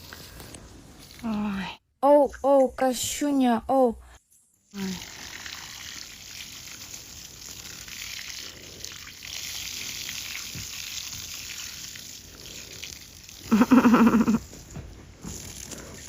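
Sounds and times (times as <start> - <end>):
water spraying with hiss: 0.0 - 1.2, 4.7 - 16.0.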